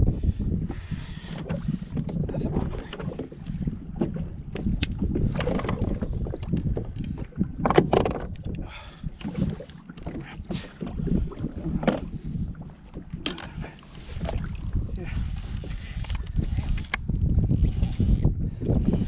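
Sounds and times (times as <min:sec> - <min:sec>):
water sloshing against hull: 0:00.0 - 0:19.0
wind buffeting microphone: 0:00.0 - 0:19.0.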